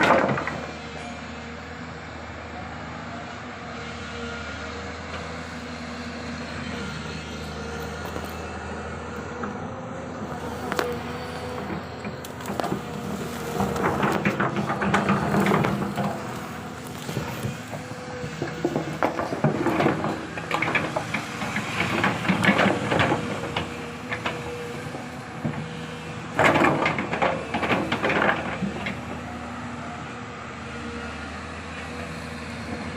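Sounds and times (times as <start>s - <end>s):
clanks and scraping: 0.0s - 1.1s, 10.2s - 29.2s
excavator engine humming: 0.0s - 32.9s.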